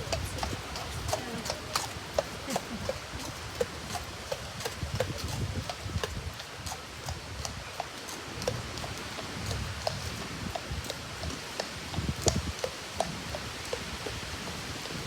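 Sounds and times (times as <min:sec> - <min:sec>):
horse hooves clip-clopping: 0:00.0 - 0:15.0.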